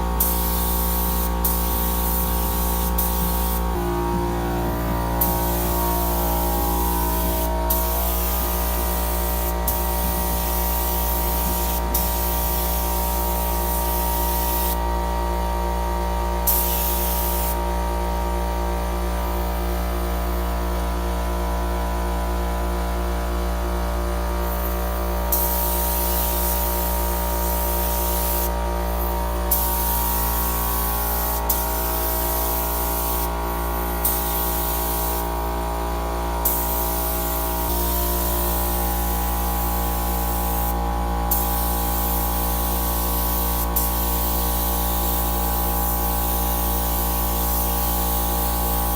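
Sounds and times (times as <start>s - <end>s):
paint spray gun hissing: 0.0s - 14.8s, 25.3s - 28.5s, 29.5s - 35.3s, 36.4s - 48.9s
steady low hum: 0.0s - 47.3s.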